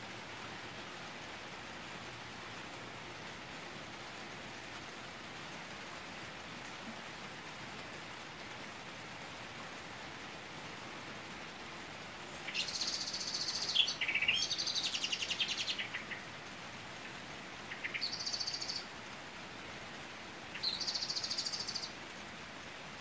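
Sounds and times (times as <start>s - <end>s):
rain hissing: 0.0s - 23.0s
songbird trilling: 12.5s - 16.2s, 17.7s - 18.9s, 20.6s - 21.9s.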